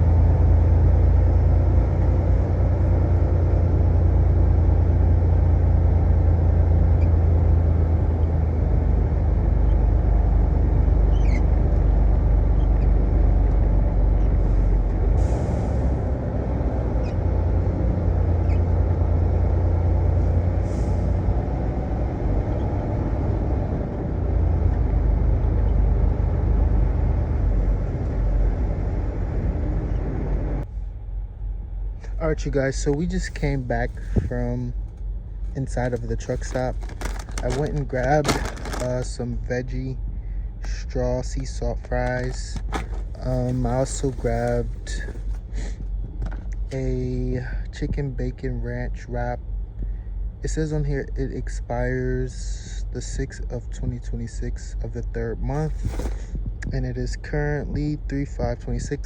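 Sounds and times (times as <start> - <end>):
diesel truck engine rumbling: 0.0 - 59.0
air brake hisses: 15.2 - 16.0.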